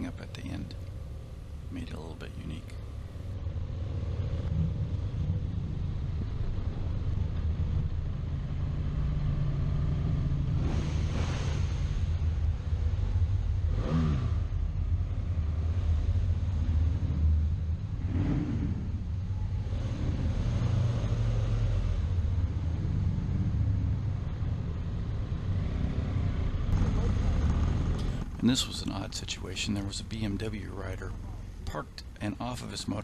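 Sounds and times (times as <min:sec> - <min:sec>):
motorcycle engine running: 0:26.4 - 0:28.9.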